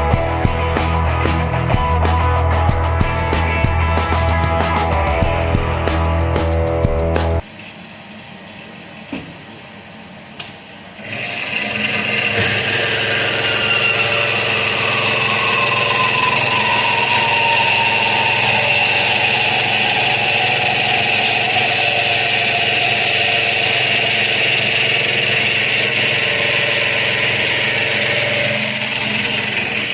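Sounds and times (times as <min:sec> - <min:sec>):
band saw cutting metal: 0:11.0 - 0:29.9
faint falling tone: 0:13.8 - 0:24.7.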